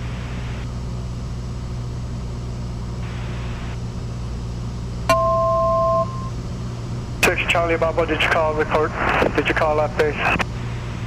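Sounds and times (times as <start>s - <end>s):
airplane engine droning: 0.0s - 11.0s
two-tone beep: 5.1s - 6.3s.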